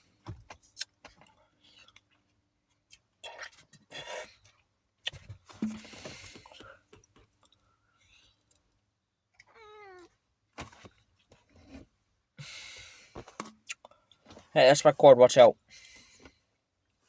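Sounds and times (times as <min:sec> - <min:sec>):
cat meowing: 0:09.5 - 0:10.1.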